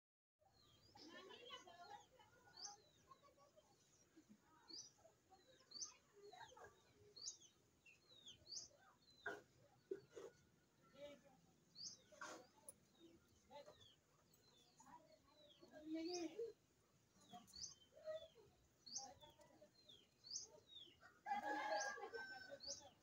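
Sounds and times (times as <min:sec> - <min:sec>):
faint birds chirping: 0:00.4 - 0:23.0.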